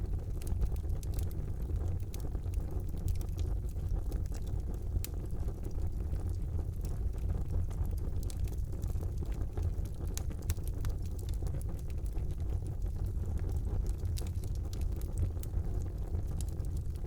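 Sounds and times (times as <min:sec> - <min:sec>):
wood fire burning: 0:00.0 - 0:17.0.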